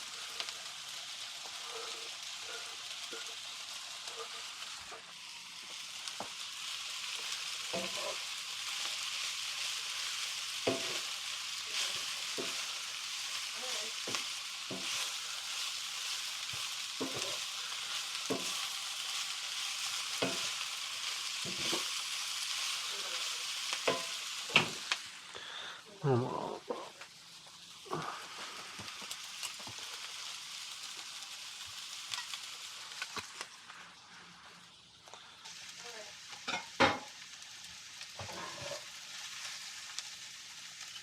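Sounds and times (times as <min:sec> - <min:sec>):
vegetables sizzling in a pan: 0:00.0 - 0:41.0
utensil scraping a pan: 0:01.5 - 0:05.0, 0:07.7 - 0:08.2, 0:10.6 - 0:11.1, 0:17.0 - 0:18.8, 0:21.4 - 0:21.9, 0:38.2 - 0:38.9.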